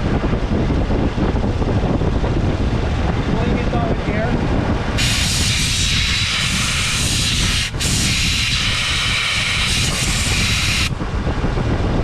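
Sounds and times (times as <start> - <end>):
low rumble: 0.0 - 8.0, 9.7 - 12.0
compressed air gun hissing: 5.0 - 10.9.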